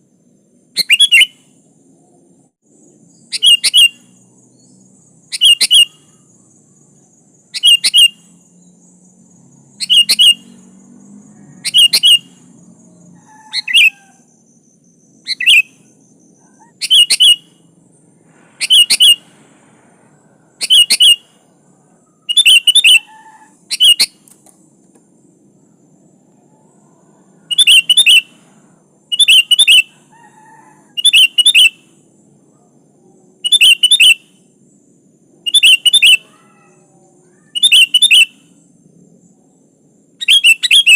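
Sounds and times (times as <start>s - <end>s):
bulbul sharp calls: 3.3s - 4.2s, 5.2s - 6.4s, 7.5s - 8.3s, 9.7s - 10.7s, 11.5s - 12.5s, 13.1s - 14.3s, 15.0s - 17.7s, 18.6s - 19.3s, 20.5s - 21.6s, 22.2s - 24.4s, 27.5s - 28.5s, 29.1s - 32.0s, 33.4s - 34.5s, 35.4s - 38.6s, 40.2s - 40.9s.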